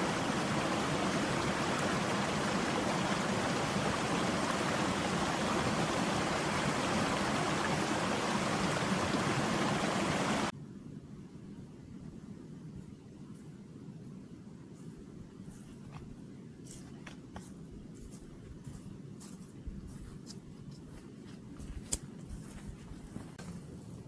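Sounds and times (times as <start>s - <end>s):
rushing stream water: 0.0s - 10.5s.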